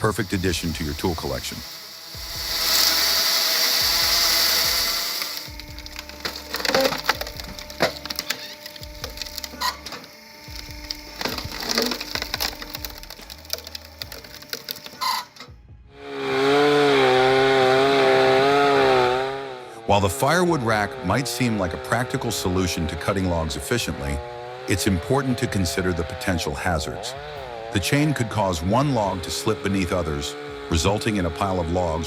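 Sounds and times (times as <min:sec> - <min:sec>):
wood cracking and splintering: 0:00.0 - 0:15.5
motor running with wavering pitch: 0:00.0 - 0:19.9
steady rasping noise: 0:00.0 - 0:32.0.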